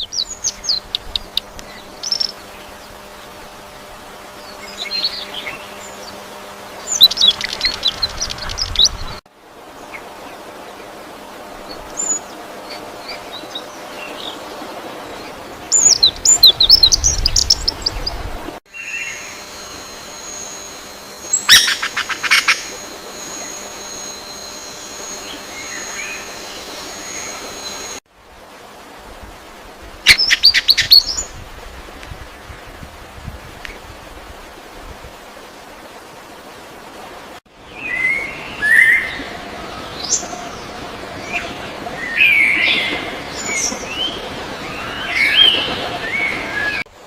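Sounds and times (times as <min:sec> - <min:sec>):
bird chirping: 0:00.0 - 0:03.0, 0:04.4 - 0:09.2, 0:15.2 - 0:28.0
thin high steady tone: 0:00.0 - 0:09.2, 0:18.7 - 0:28.0
steady background hiss: 0:00.0 - 0:47.0.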